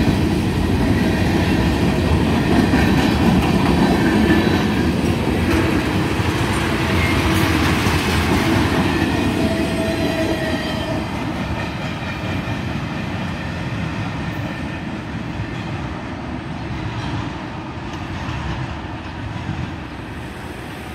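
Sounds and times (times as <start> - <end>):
train wheels clattering on rails: 0.0 - 20.9.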